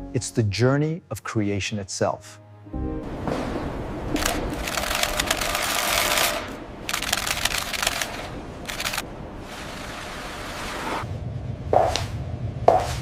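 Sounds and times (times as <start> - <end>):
rapid mechanical clatter: 4.2 - 9.0.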